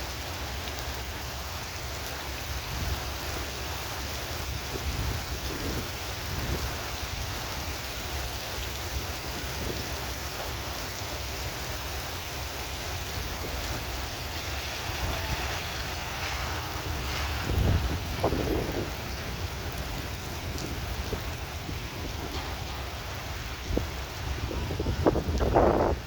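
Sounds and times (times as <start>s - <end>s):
heavy rain falling: 0.0s - 26.0s
low thunder rumble: 11.1s - 26.0s.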